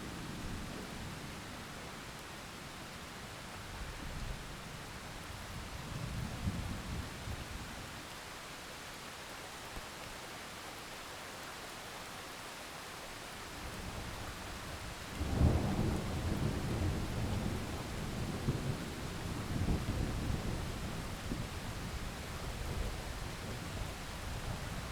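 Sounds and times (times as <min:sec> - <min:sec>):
heavy rain falling: 0:05.2 - 0:24.9.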